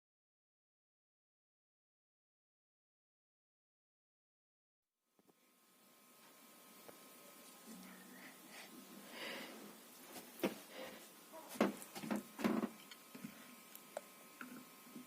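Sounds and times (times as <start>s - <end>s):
ceiling fan whine: 5.1s - 15.0s.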